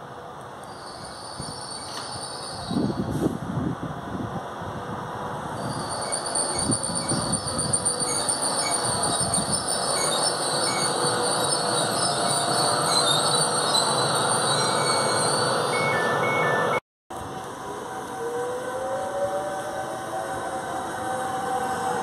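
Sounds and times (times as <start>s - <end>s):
train cars rumbling: 0.0s - 16.8s
high-pitched brake squeal: 0.7s - 3.3s, 5.5s - 16.8s.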